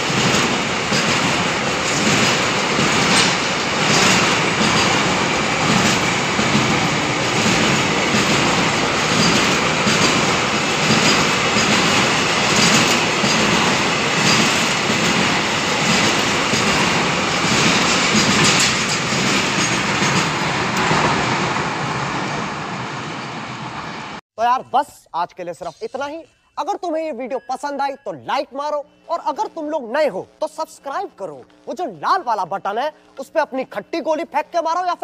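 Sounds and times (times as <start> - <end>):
wheels clattering over rail joints: 0.0 - 21.6
freight train rumbling past: 0.0 - 24.2.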